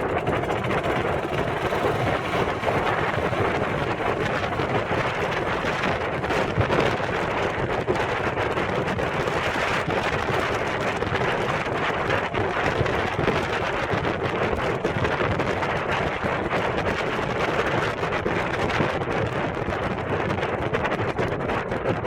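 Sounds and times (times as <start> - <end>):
diesel engine running: 0.0 - 15.1.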